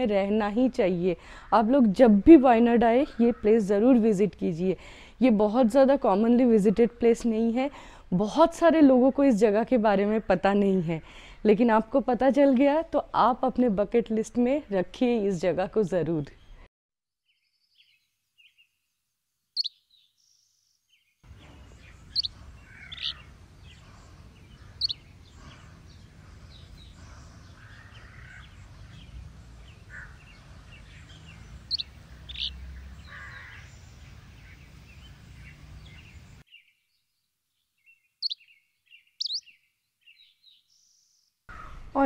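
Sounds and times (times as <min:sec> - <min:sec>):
birds chirping: 0:19.6 - 0:42.0
low open-air background hum: 0:21.3 - 0:36.4.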